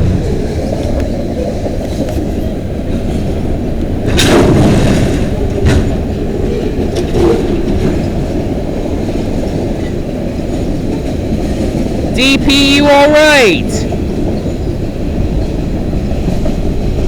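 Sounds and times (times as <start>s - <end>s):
train clanks and squeals: 0.0s - 12.0s, 13.9s - 17.0s
freight train wheels rumbling: 0.0s - 17.0s.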